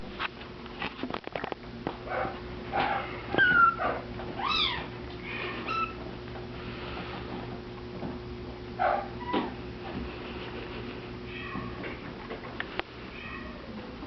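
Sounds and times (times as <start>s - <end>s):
kitten mewing: 3.4s - 5.9s, 11.3s - 12.0s.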